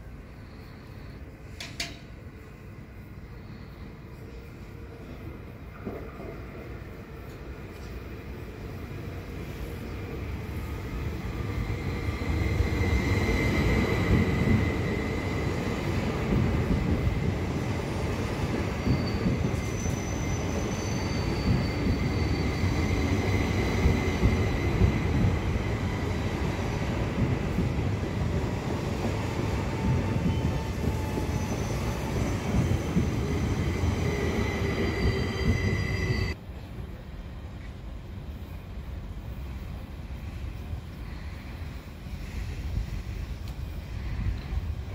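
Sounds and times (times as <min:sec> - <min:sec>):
train rumbling on rails: 0:00.0 - 0:44.9
high-pitched wheel squeal: 0:18.8 - 0:23.4, 0:34.0 - 0:36.4.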